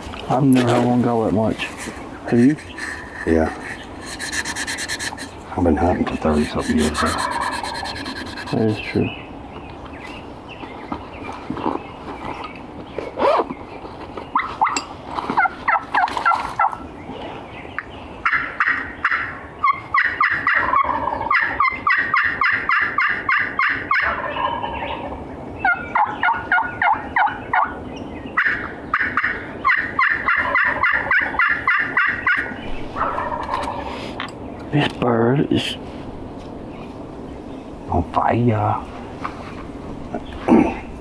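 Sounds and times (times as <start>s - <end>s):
turkey call yelps: 6.3s - 8.6s, 18.2s - 27.8s, 28.4s - 34.0s.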